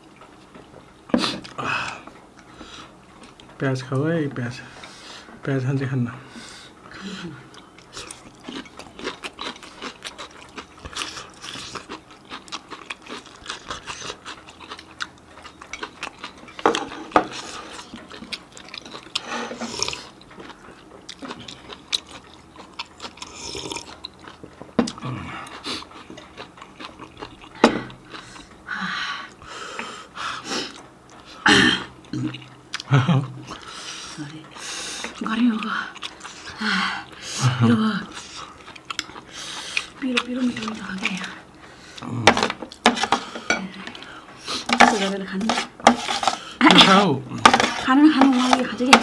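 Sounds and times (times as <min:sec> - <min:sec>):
wet chewing and smacking: 0:07.4 - 0:28.7, 0:30.7 - 0:37.4, 0:38.0 - 0:49.0
hissing breaths: 0:39.3 - 0:40.0.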